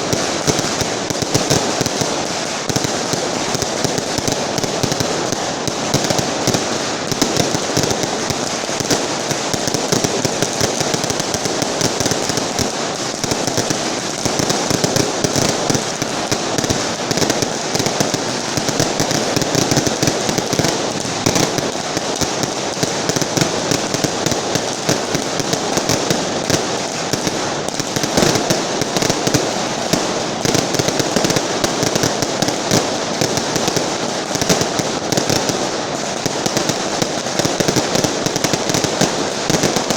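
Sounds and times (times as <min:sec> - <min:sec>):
firecracker strings crackling: 0:00.0 - 0:39.9.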